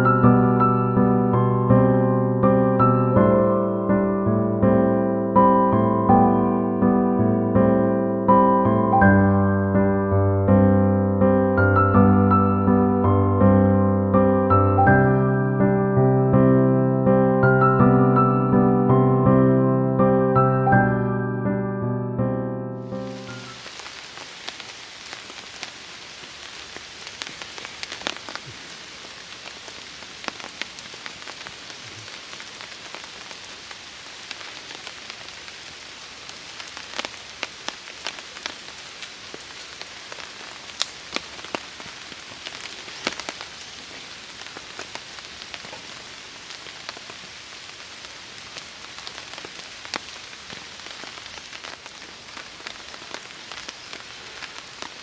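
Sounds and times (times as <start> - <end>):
rain falling on a tarp: 22.8 - 55.0.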